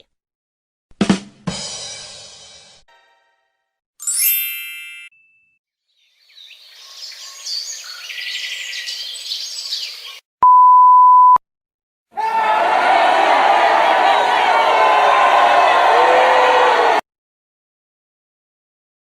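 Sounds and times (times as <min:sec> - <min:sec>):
birds chirping: 0:05.9 - 0:10.2
high censor bleep: 0:10.4 - 0:11.4.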